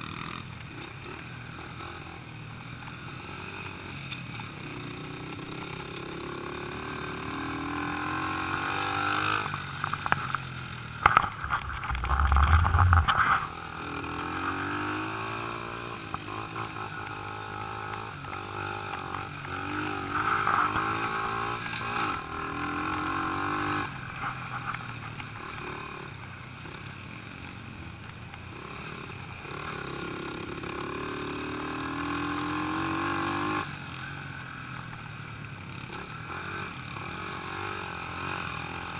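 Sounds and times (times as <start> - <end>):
pit bike engines revving: 0.0 - 27.6
heavy low rumble: 11.0 - 13.6.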